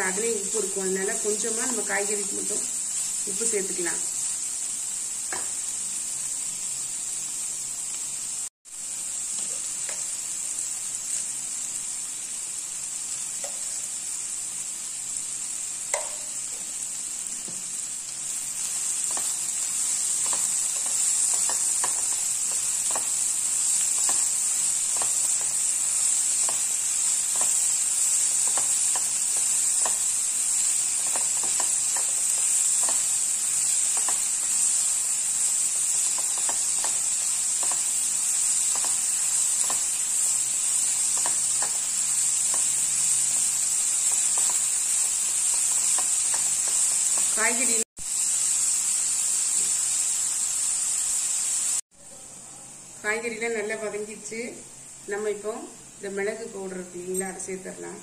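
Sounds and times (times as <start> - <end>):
vegetables sizzling in a pan: 0.0 - 58.0
spatula scraping and tapping: 19.0 - 30.2, 31.0 - 34.5, 36.0 - 40.0, 40.9 - 42.9, 44.0 - 47.4.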